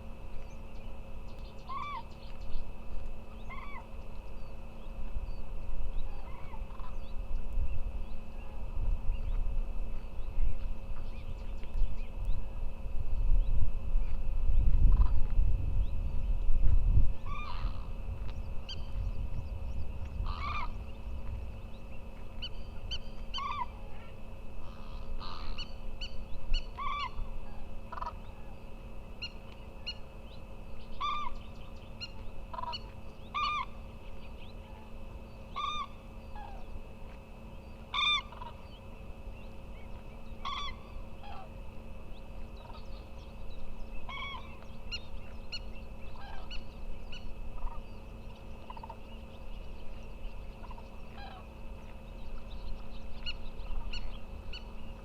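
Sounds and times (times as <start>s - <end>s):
low wind rumble: 0.0s - 55.0s
flamingo honking calls: 1.7s - 2.0s, 6.1s - 7.0s, 14.9s - 15.3s, 17.2s - 17.9s, 20.2s - 20.8s, 23.3s - 25.7s, 26.8s - 28.5s, 31.0s - 31.4s, 32.5s - 33.8s, 35.6s - 36.6s, 37.9s - 38.6s, 40.4s - 41.5s, 44.1s - 44.5s, 45.5s - 46.7s, 50.6s - 51.5s.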